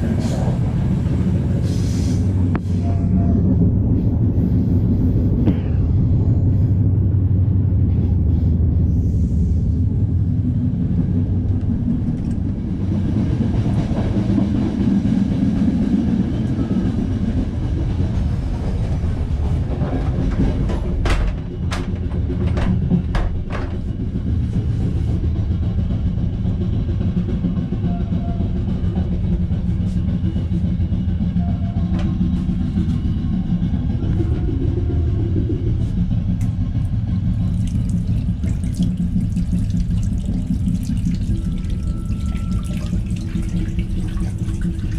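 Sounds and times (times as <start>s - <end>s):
train rumbling on rails: 0.0s - 44.9s
sharp clicks and knocks: 20.0s - 24.0s.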